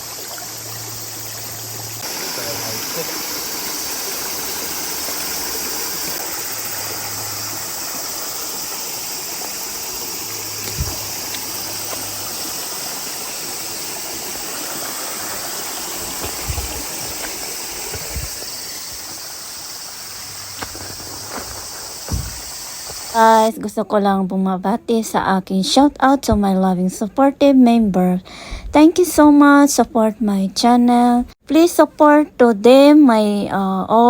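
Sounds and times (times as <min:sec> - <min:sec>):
stream water flowing and splashing: 0:00.0 - 0:23.5
dull low bumps: 0:10.6 - 0:11.4, 0:16.0 - 0:18.4, 0:20.4 - 0:22.6.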